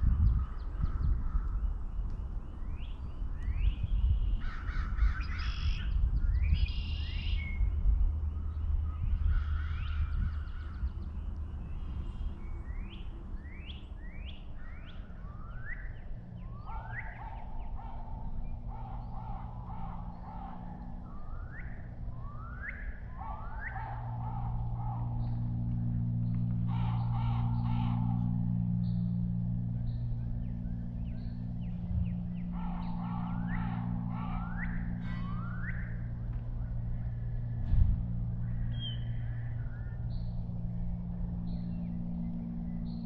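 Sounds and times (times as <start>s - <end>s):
low rumble of wind: 0.0s - 43.0s
steady low hum: 0.0s - 43.0s
crows cawing: 4.4s - 5.8s, 16.6s - 22.1s, 22.7s - 28.8s, 32.3s - 36.4s
small birds chirping: 8.3s - 37.1s.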